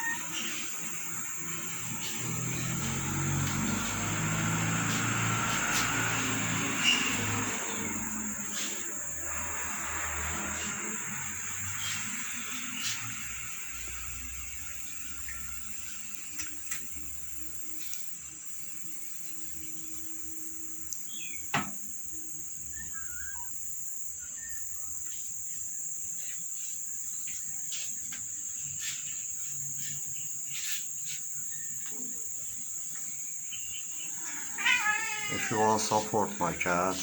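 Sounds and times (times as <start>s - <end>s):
high-pitched whine: 0.0s - 15.8s
single knock: 21.5s - 21.8s.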